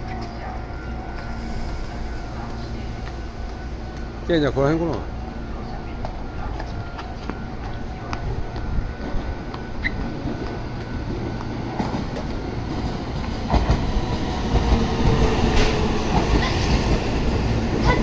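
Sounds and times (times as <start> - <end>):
train rumble and wheel noise: 0.0 - 18.0.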